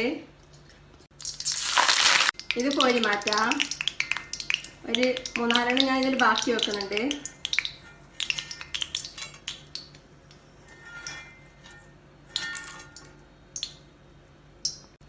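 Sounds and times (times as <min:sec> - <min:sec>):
metal spoon scraping a wok: 0:10.6 - 0:13.1.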